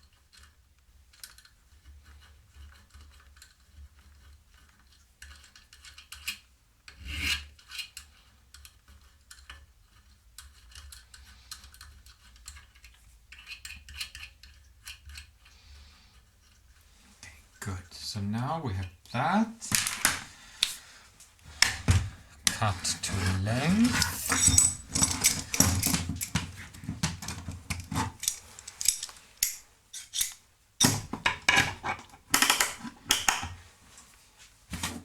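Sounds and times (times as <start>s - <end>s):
metal file rasping: 7.0s - 7.5s, 22.5s - 26.4s, 27.7s - 32.2s.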